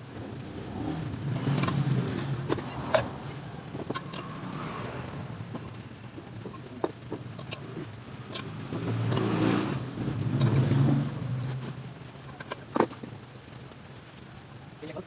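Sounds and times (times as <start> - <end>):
vehicle engine hum passing: 0.4 - 6.6.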